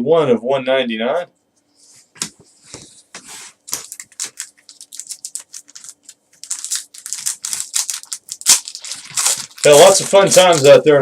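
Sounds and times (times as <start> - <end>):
faint steady hum: 0.0 - 11.0
cards clicking and rustling: 3.7 - 10.8.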